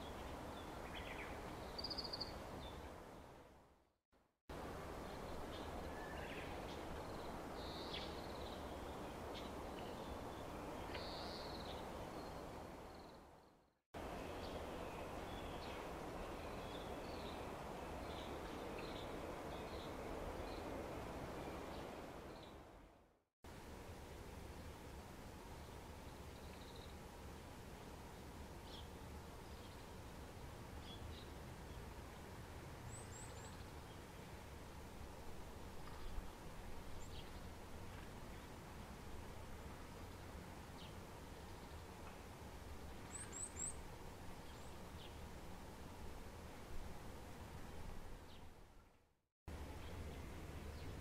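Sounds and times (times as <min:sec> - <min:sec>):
small songbirds chirping: 0:00.0 - 0:03.3, 0:05.0 - 0:22.7, 0:25.5 - 0:27.1, 0:28.1 - 0:31.9, 0:32.9 - 0:34.3, 0:36.9 - 0:37.6, 0:42.9 - 0:45.3, 0:49.5 - 0:51.0
low background noise: 0:04.5 - 0:51.0
low steady hum: 0:14.0 - 0:51.0.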